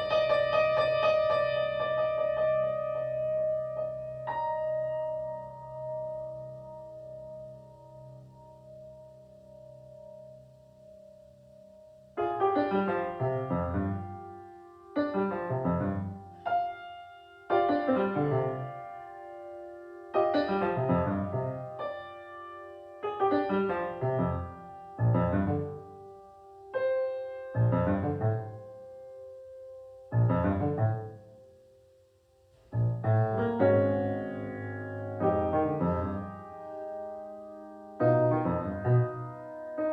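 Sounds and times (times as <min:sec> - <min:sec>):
piano chords: 0:00.0 - 0:39.9.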